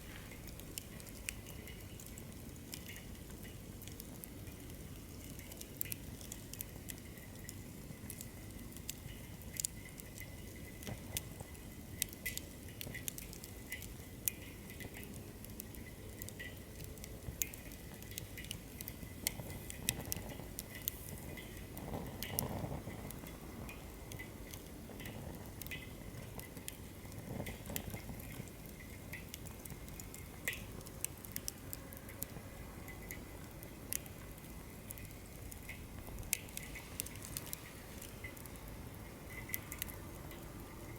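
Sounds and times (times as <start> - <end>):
campfire crackling and popping: 0.0 - 40.9
flames roaring: 17.2 - 40.9.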